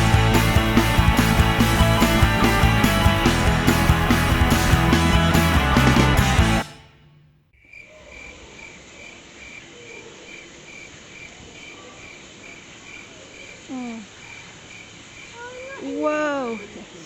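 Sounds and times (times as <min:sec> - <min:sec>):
cricket chirping: 0:07.6 - 0:17.0.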